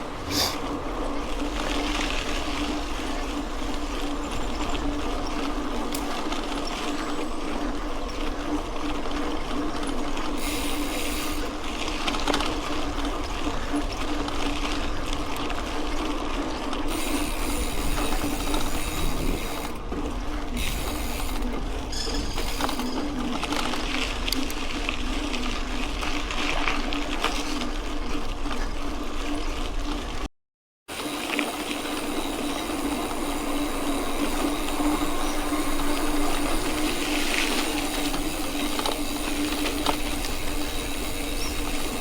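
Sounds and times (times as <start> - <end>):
bike parts rattling: 20.6 - 24.2, 31.4 - 42.0
steady hum: 31.0 - 42.0.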